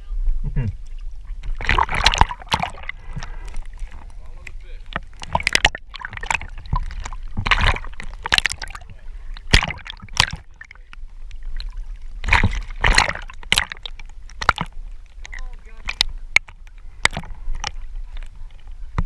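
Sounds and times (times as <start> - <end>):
water sloshing and splashing: 0.3 - 19.0.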